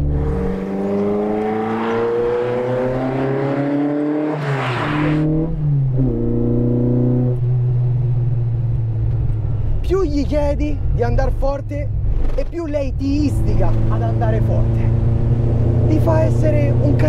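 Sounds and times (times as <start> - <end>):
car engine accelerating hard: 0.0 - 8.5, 13.1 - 17.0.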